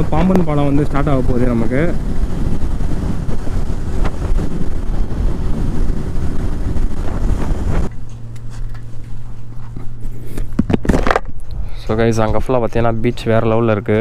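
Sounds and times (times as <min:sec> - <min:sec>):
wind blasting microphone: 0:00.0 - 0:08.1
steady low hum: 0:00.0 - 0:14.0.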